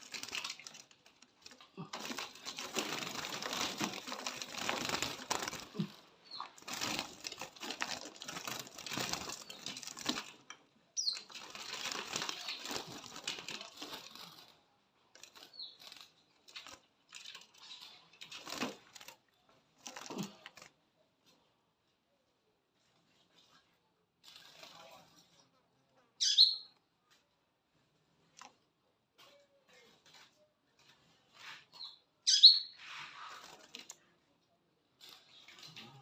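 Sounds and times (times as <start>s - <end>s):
bird fluttering and scrabbling: 0.0s - 19.2s, 19.8s - 20.8s, 29.8s - 34.1s, 35.0s - 36.0s
high bird chirps: 11.0s - 11.4s, 26.2s - 26.8s, 31.8s - 32.9s.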